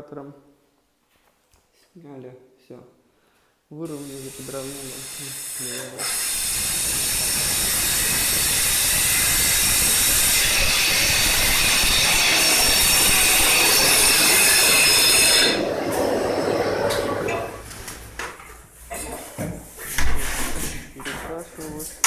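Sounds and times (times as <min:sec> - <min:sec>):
wall chaser grinding concrete: 0:04.1 - 0:17.6.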